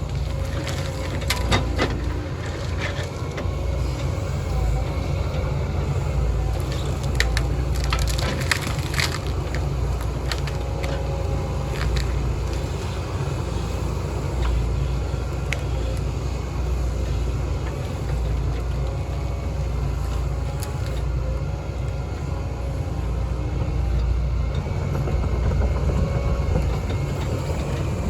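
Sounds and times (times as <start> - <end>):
heavy diesel machinery running: 0.0 - 28.0
wood splintering: 6.5 - 12.7.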